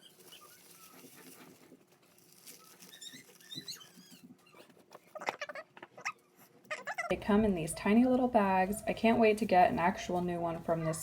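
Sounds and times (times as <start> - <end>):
cardboard and plastic rustling: 0.0 - 5.2.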